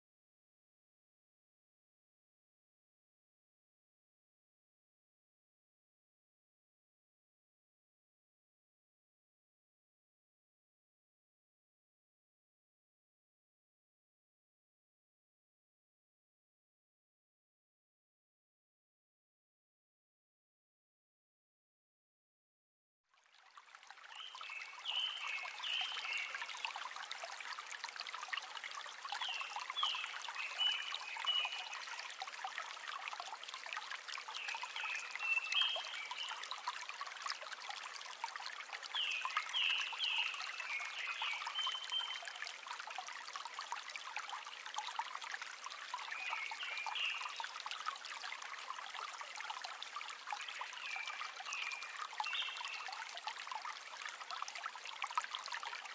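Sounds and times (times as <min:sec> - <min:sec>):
water trickling: 0:23.1 - 0:55.9.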